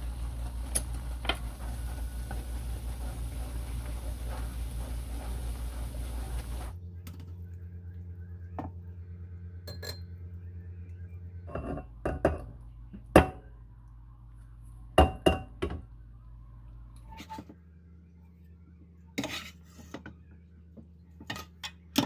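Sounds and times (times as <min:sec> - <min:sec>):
steady low hum: 0:00.0 - 0:21.3
dishes and glassware clinking: 0:09.7 - 0:10.1.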